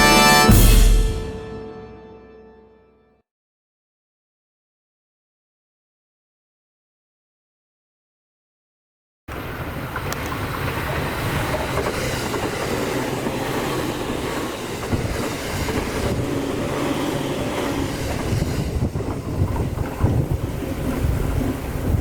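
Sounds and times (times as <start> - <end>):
train rumbling on rails: 9.3 - 22.0.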